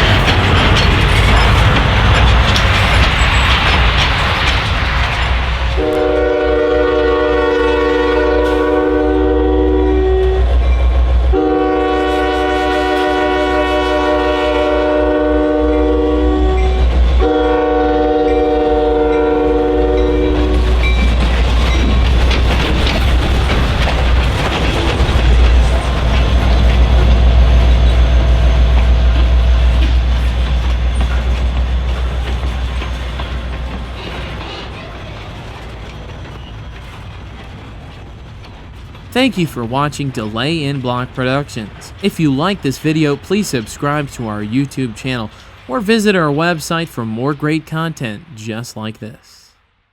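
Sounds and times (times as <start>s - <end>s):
wheels clacking on rails: 0.0s - 48.2s
diesel train rumbling: 0.0s - 49.2s
locomotive air horn blasts: 5.8s - 10.5s, 11.3s - 20.8s.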